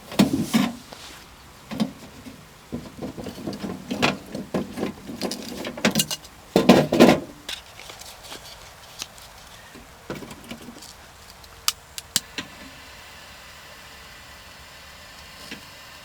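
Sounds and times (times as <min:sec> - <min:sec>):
rustling and knocking: 0:00.0 - 0:11.3.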